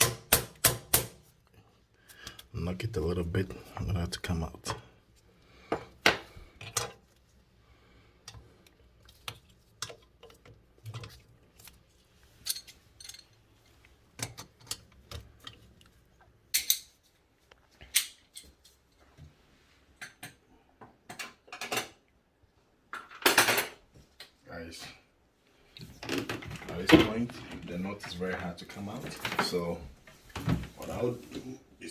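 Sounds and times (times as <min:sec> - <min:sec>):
metal tools clinking on nut: 0:12.4 - 0:13.4.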